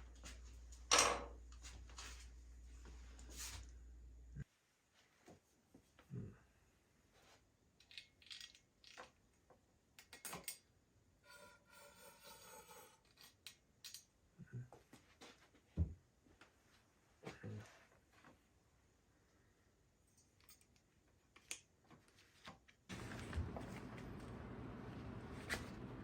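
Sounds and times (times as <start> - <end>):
small objects clicking and knocking: 7.8 - 9.2.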